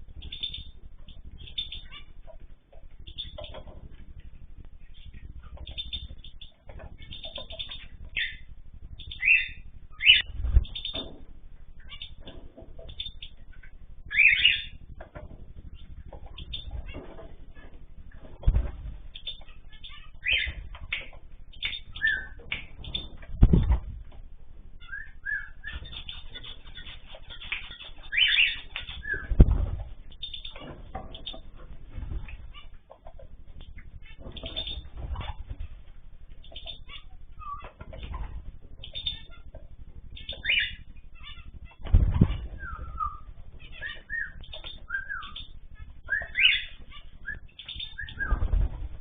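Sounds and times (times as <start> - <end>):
small birds chirping: 0.0 - 49.0
wings fluttering: 0.0 - 49.0.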